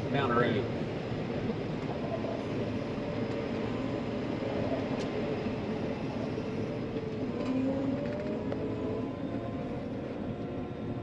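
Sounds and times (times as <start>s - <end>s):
tractor engine drone: 0.0s - 11.0s.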